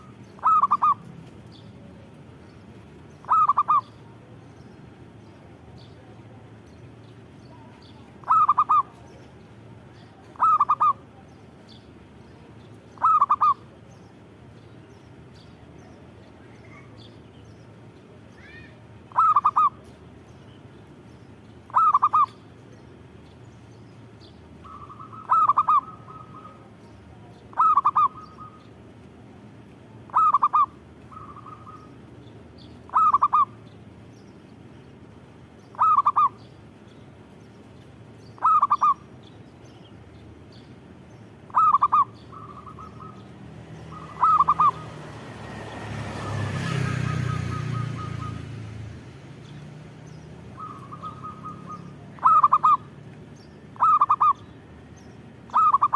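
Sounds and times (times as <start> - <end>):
dove cooing: 0.0 - 1.1, 3.2 - 4.4, 7.5 - 9.4, 10.0 - 11.2, 13.0 - 13.8, 19.1 - 19.9, 21.7 - 22.4, 24.6 - 28.6, 30.1 - 32.0, 32.8 - 33.6, 35.7 - 36.4, 38.4 - 39.0, 41.5 - 43.3, 43.9 - 45.0, 50.6 - 52.9, 53.8 - 54.4, 55.5 - 55.9.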